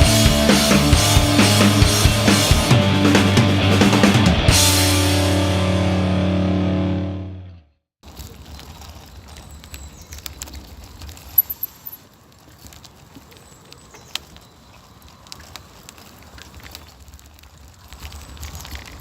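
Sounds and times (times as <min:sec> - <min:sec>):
bicycle clicks and rattles: 0:08.1 - 0:19.0.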